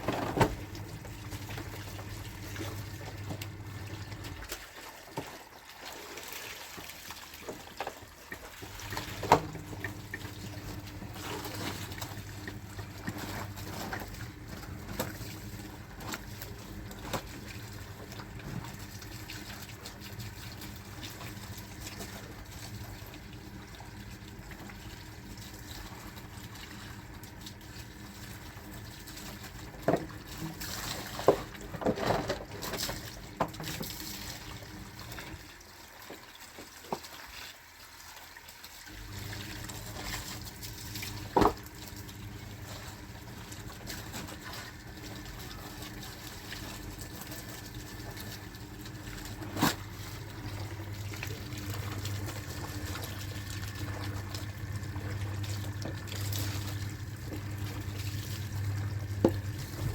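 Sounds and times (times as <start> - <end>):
washing machine hum: 0.0 - 59.9
water sloshing and trickling: 0.0 - 59.9.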